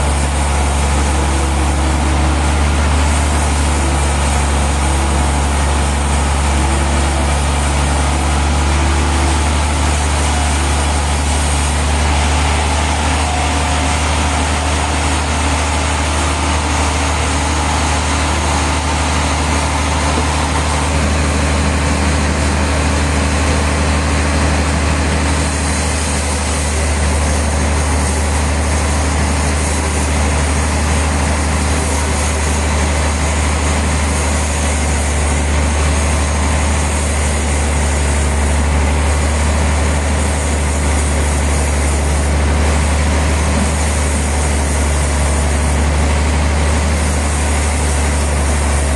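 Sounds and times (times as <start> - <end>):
sawmill machinery drone: 0.0 - 48.9.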